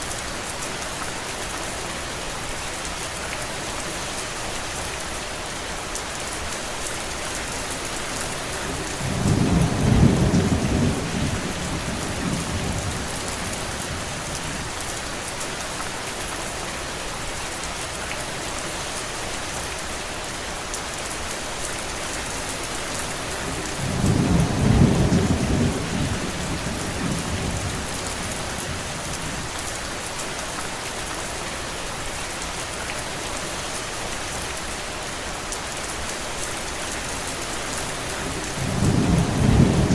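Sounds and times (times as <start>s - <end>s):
distant thunder rumbles: 38.2s - 39.9s.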